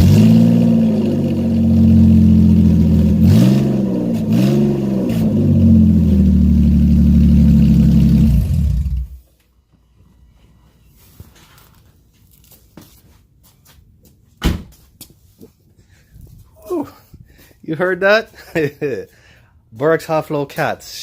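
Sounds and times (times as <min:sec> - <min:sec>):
loud car engine idling and revving: 0:00.0 - 0:09.2.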